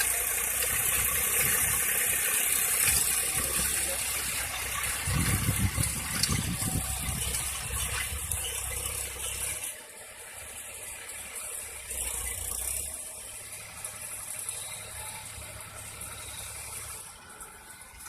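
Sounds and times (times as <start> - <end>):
plough mechanical rattle: 0.0 - 18.0
tractor engine rumble: 0.0 - 18.0.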